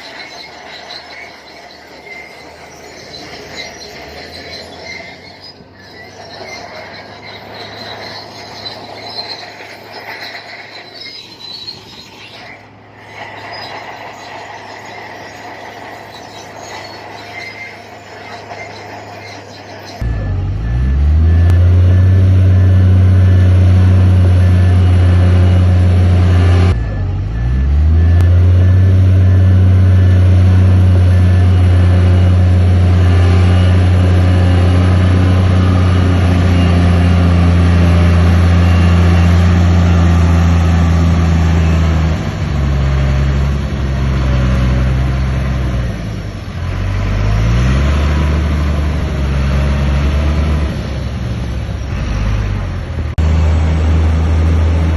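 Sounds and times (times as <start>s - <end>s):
bulldozer diesel engine revving: 0.0s - 54.9s.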